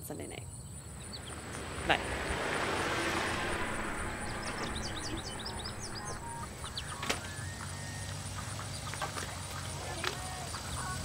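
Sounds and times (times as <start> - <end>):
songbird chirping: 0.1 - 11.0
steady low hum: 0.5 - 8.9.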